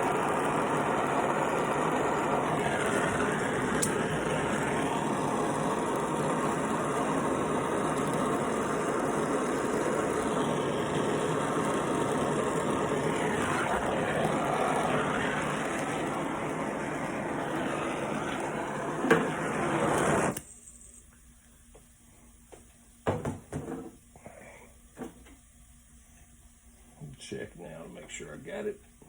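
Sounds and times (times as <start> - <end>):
gas torch flame hissing: 0.0 - 20.5.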